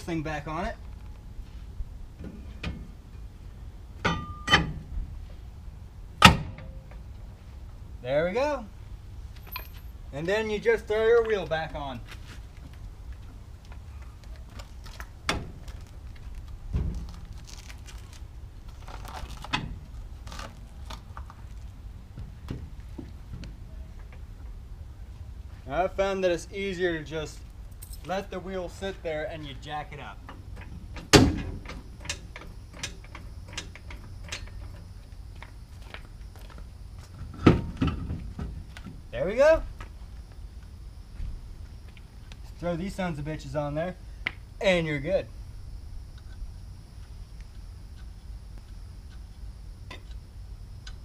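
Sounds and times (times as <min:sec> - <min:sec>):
metal knocks and clanks: 0:04.0 - 0:04.9.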